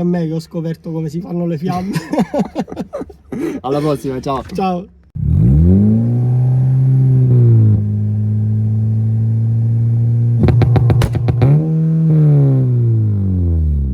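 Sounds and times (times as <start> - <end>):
car engine revving: 5.2 - 13.9
exhaust pops: 10.4 - 13.3.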